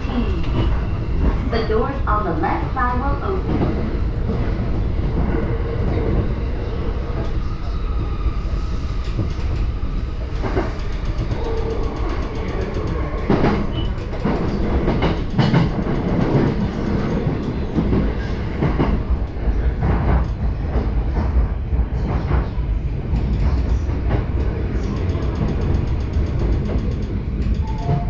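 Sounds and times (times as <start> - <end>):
train wheels rumbling on rail: 0.0 - 28.0
clacks over rail joints: 10.4 - 28.0.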